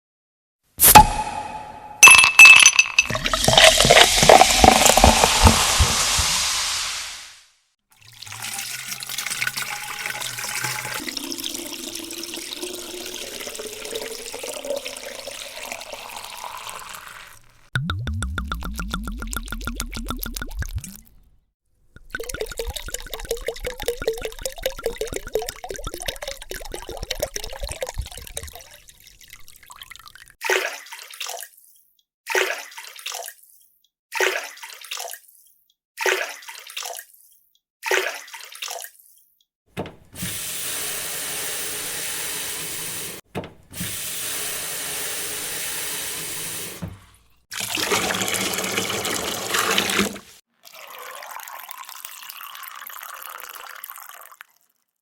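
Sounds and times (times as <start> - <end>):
fizzing liquid being poured: 2.0 - 7.4, 8.0 - 21.2, 22.0 - 30.4, 47.5 - 54.9.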